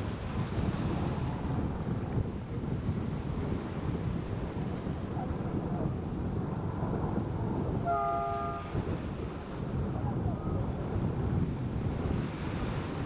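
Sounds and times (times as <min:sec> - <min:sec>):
wind buffeting microphone: 0:00.0 - 0:13.0
train horn blast: 0:07.8 - 0:09.0.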